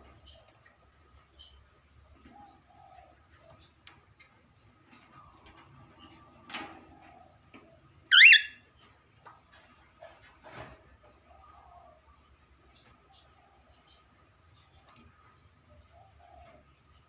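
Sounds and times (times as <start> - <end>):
budgerigar chirp: 8.1 - 8.6.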